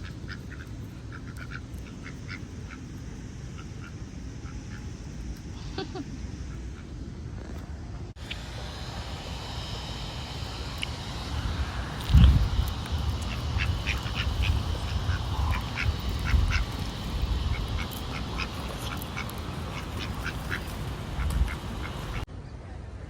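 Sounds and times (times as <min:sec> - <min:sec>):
ducks quacking: 0:00.0 - 0:05.0, 0:12.7 - 0:22.2
low microphone rumble: 0:01.8 - 0:22.3.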